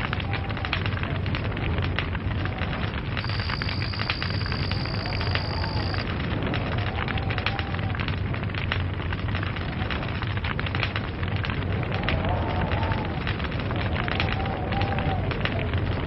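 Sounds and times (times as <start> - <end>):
log fire crackling and popping: 0.0 - 16.0
low fire rumble: 0.0 - 16.0
high-pitched whistle: 3.2 - 6.0.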